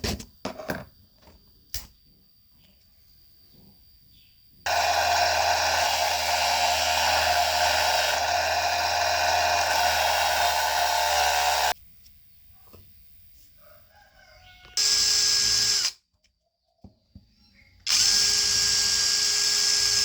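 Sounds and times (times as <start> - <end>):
small electric motor whirring: 4.7 - 11.8, 14.8 - 16.0, 17.9 - 20.0.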